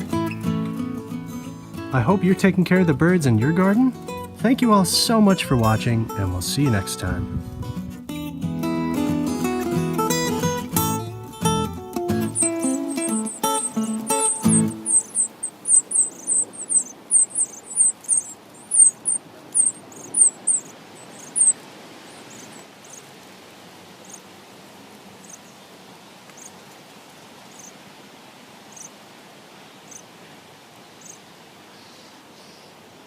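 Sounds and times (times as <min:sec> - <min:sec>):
faint outdoor hiss: 0:00.0 - 0:33.0
bird chirping: 0:11.5 - 0:23.1, 0:24.0 - 0:24.2, 0:25.2 - 0:25.6, 0:27.5 - 0:27.7.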